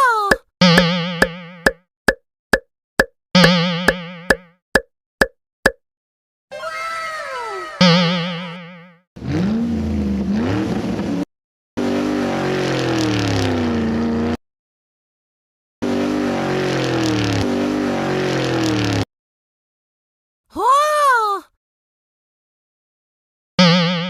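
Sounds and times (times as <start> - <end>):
car engine revving: 9.2 - 11.2, 11.8 - 14.4, 15.8 - 19.1.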